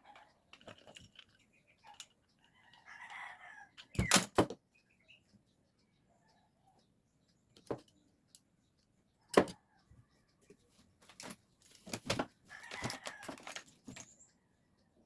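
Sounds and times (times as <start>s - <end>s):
small metal parts clicking: 0.0s - 3.2s, 12.5s - 14.2s.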